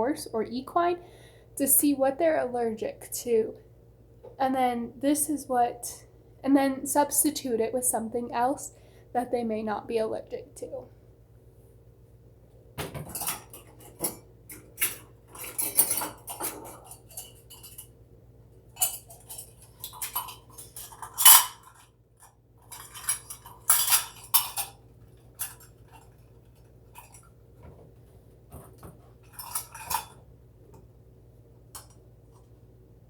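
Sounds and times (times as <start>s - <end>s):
kitchen utensils and dishes clinking: 12.9s - 17.9s, 18.8s - 21.9s, 22.6s - 24.8s, 29.2s - 30.2s.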